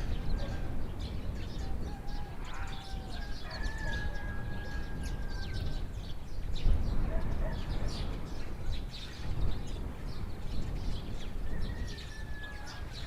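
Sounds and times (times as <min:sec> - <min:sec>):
small birds chirping: 0:00.0 - 0:13.0
rooster crowing: 0:01.6 - 0:05.9, 0:11.4 - 0:13.0.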